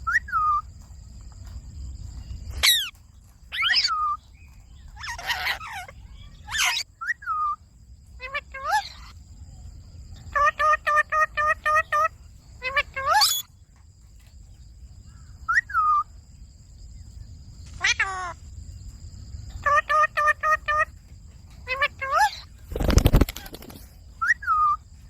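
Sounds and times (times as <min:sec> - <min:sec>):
parrot calling: 0:02.5 - 0:04.2, 0:04.9 - 0:09.2, 0:10.2 - 0:13.5, 0:17.7 - 0:18.5, 0:19.5 - 0:21.0, 0:21.6 - 0:22.6, 0:24.2 - 0:24.8.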